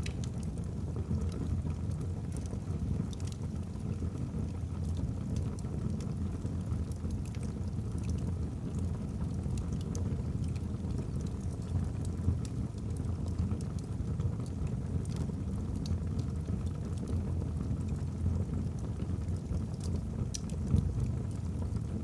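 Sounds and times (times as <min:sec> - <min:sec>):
wood fire burning: 0:00.0 - 0:22.0.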